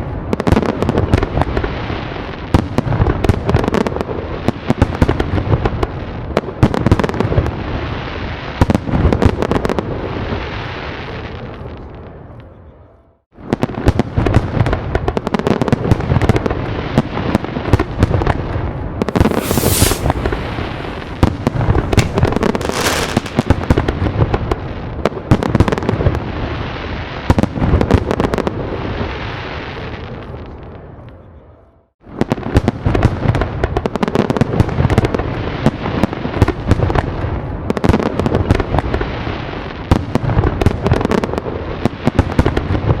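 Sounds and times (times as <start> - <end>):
fireworks bangs and crackling: 0.0 - 11.9, 13.4 - 30.6, 32.0 - 43.0
deep firework booms: 19.0 - 26.6
hissing bursts: 19.1 - 23.4.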